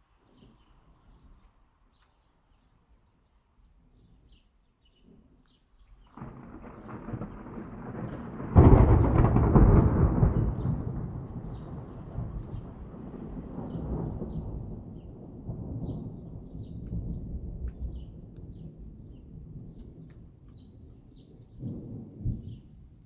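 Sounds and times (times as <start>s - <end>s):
thunder rumble: 6.1s - 23.0s.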